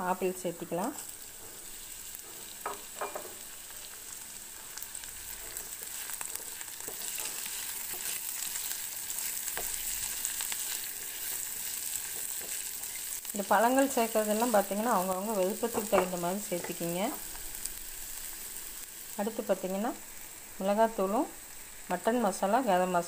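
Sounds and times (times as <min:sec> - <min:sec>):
vegetables sizzling in hot oil: 0:00.0 - 0:23.0
spatula scraping pan: 0:05.3 - 0:13.2.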